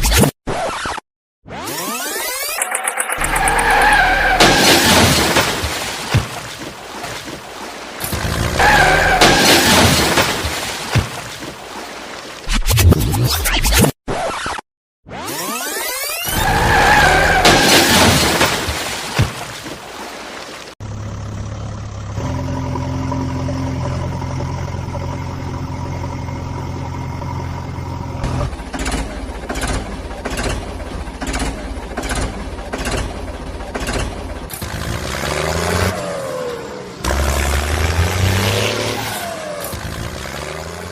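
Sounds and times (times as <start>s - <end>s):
vehicle engine running: 20.8s - 35.6s.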